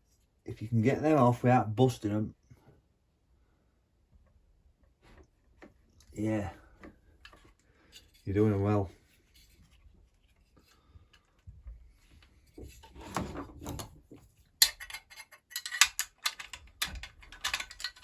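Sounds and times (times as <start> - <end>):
metal tools clinking: 14.6 - 18.0.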